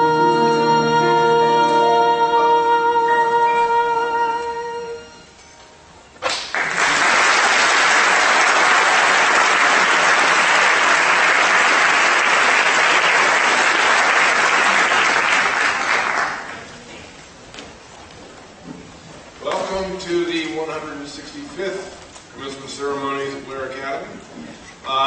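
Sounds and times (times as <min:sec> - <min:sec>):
audience applauding: 0:06.2 - 0:16.9.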